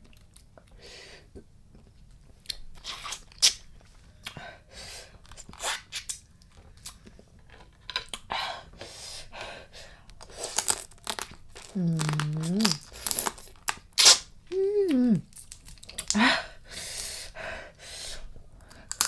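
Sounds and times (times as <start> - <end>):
person chewing and crunching food: 0.0 - 4.4, 5.1 - 8.3, 10.0 - 14.3, 15.2 - 16.2, 18.6 - 19.0.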